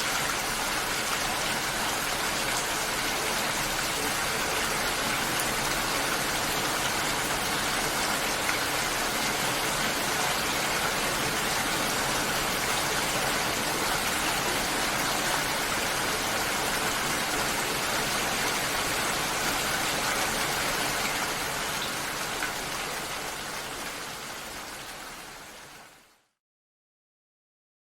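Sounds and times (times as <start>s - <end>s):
rushing water: 0.0s - 26.1s.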